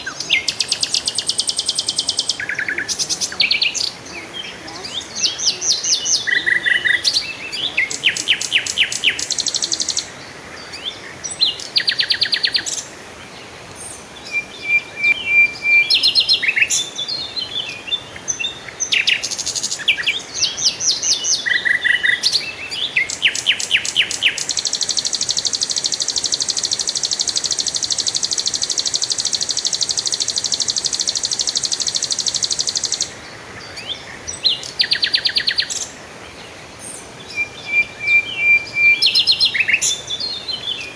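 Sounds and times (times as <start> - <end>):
high buzzing bird trill: 0.0 - 10.2, 14.3 - 17.2
songbirds singing trilled phrases: 0.0 - 40.9.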